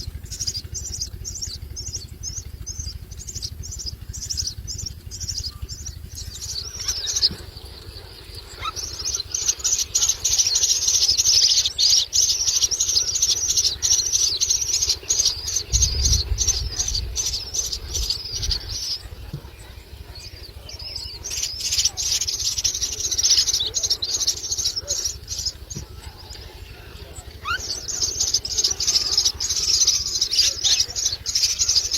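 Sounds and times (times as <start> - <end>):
low rumble: 0.0 - 10.4, 13.0 - 21.7
chicks chattering: 0.0 - 31.9.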